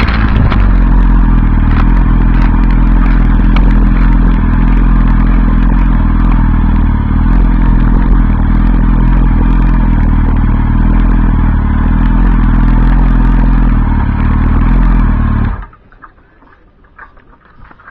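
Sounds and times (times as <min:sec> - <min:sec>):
motorcycle engine running: 0:00.0 - 0:15.8.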